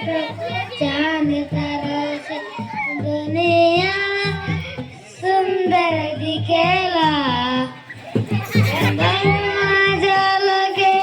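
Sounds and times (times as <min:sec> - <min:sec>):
young voice singing: 0:00.0 - 0:11.0
backing beat: 0:08.0 - 0:10.5.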